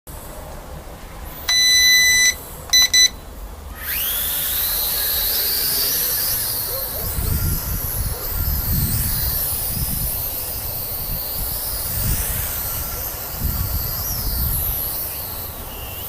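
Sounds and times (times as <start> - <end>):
electronic beeps: 1.5 - 3.2
toy drone motors whining: 3.7 - 16.0
wind rumble on microphone: 6.9 - 15.6.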